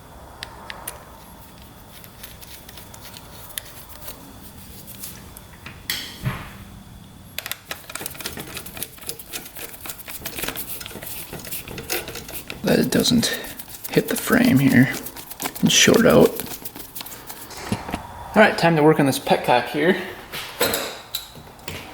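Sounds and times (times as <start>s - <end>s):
hand tools clicking on metal: 0.7s - 4.2s, 7.4s - 17.6s.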